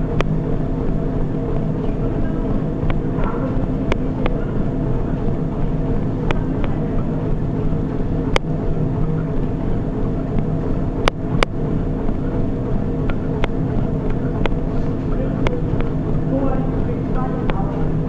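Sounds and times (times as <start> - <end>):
treadmill motor and belt drone: 0.0 - 18.0
sharp clicks: 13.0 - 14.6.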